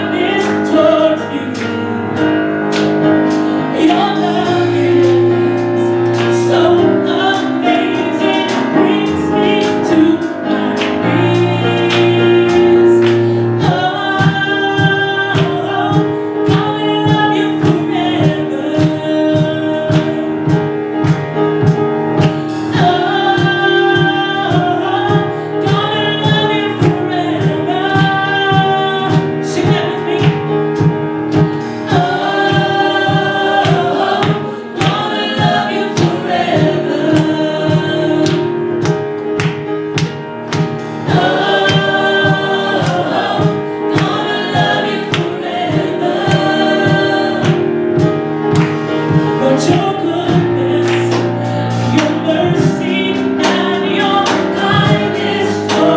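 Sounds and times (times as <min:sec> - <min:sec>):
band with steady beat: 0:00.0 - 0:55.9
vocal group singing in harmony: 0:00.0 - 0:55.9.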